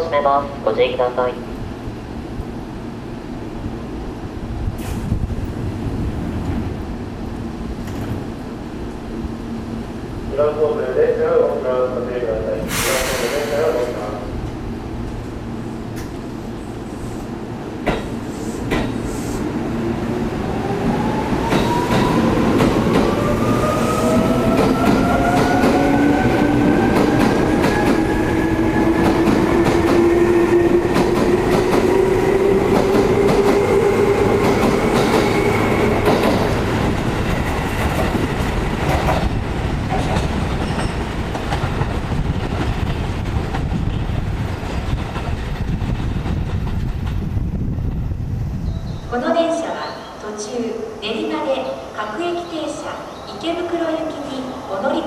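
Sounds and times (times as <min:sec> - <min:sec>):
train wheels clattering on rails: 0:17.8 - 0:19.2, 0:32.6 - 0:48.0.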